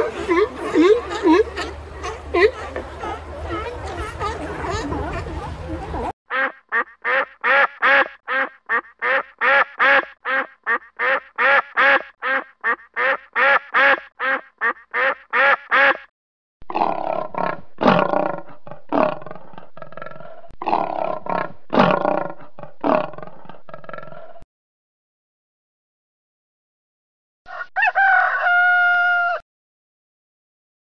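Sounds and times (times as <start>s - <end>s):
lion roaring: 16.7s - 24.4s.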